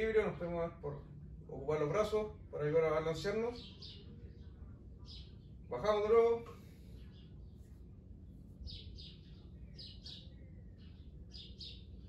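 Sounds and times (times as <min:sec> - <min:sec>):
low background hum: 0:00.0 - 0:12.0
small bird chirping: 0:03.3 - 0:12.0.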